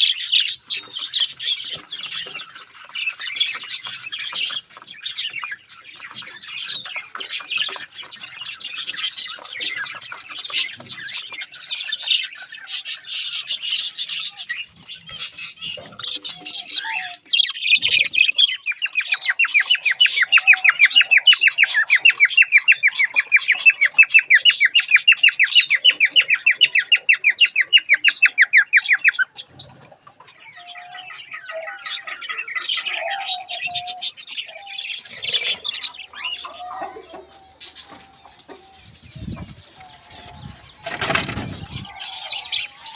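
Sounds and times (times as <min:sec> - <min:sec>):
cage birds chirping and twittering: 0:00.0 - 0:42.9.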